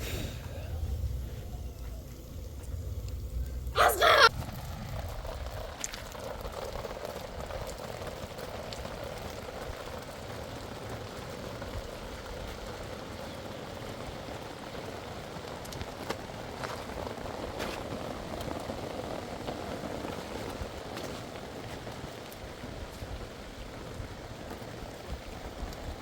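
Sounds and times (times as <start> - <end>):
steady rain hiss: 0.0 - 26.0
light rain taps: 7.4 - 26.0.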